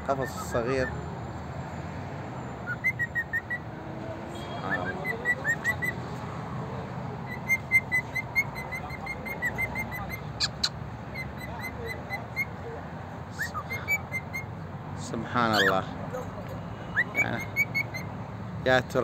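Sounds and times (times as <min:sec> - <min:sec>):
sharp bird squeaks: 0:02.4 - 0:03.7, 0:04.4 - 0:06.2, 0:07.2 - 0:12.6, 0:13.3 - 0:14.6, 0:15.4 - 0:15.9, 0:16.6 - 0:18.2
bird whistled chirps: 0:02.6 - 0:03.6, 0:04.4 - 0:06.0, 0:07.3 - 0:12.5, 0:13.3 - 0:14.5, 0:15.5 - 0:15.7, 0:16.8 - 0:18.1.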